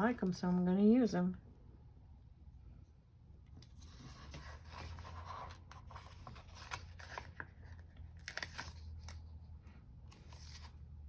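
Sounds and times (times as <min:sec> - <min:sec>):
low steady hum: 0:00.0 - 0:11.0
paper rustling: 0:03.7 - 0:09.2.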